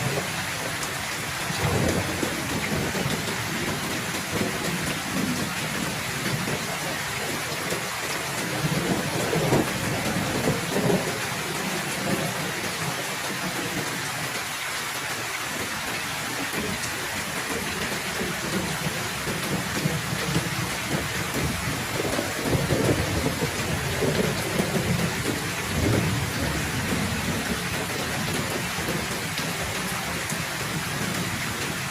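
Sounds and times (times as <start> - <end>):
heavy rain falling: 0.0 - 31.9
thunder rumbling: 1.5 - 6.6, 8.4 - 11.2, 18.2 - 31.3.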